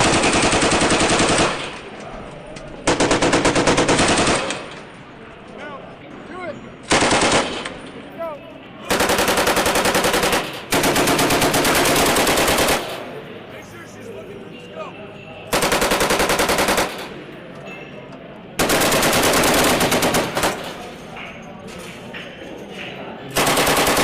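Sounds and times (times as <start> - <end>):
automatic weapon firing bursts: 0.0 - 1.8, 2.8 - 4.7, 6.9 - 7.6, 8.9 - 13.0, 15.5 - 17.1, 18.6 - 20.8, 23.4 - 24.0.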